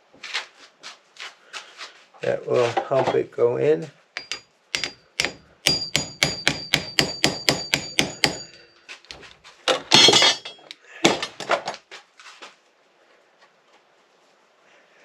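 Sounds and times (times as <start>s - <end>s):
hammer tapping on metal spoke: 4.2s - 8.6s.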